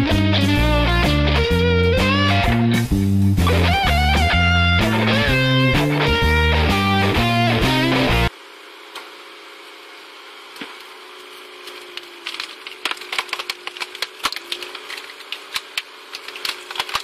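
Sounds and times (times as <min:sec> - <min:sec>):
log splitter humming: 0:00.0 - 0:17.0
wood cracking and splintering: 0:11.8 - 0:17.0.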